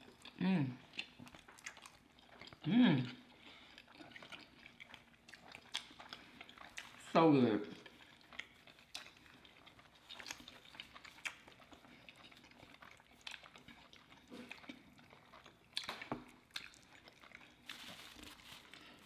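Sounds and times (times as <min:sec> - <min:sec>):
people chewing: 0:00.0 - 0:19.0
mouth clicks and smacks: 0:15.7 - 0:16.9.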